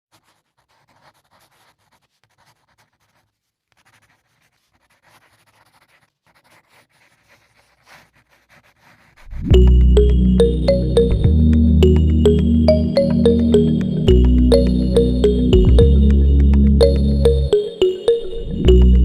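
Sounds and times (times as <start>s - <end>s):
drawing tool scratching on paper: 0.1s - 9.5s.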